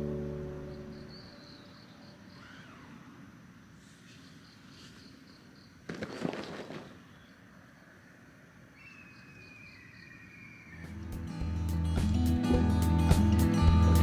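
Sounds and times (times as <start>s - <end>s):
music: 0.0s - 1.1s, 10.9s - 14.0s
faint high chirps: 0.0s - 3.3s, 8.7s - 11.0s.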